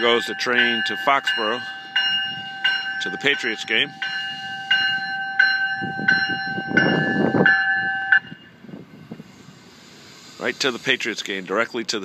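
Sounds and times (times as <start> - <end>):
railroad bell striking: 0.0 - 9.3
train rumbling: 0.0 - 12.0.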